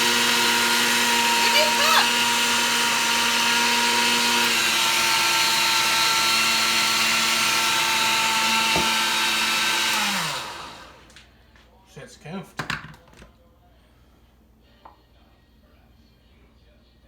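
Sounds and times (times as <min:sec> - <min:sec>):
blender motor running: 0:00.0 - 0:11.2.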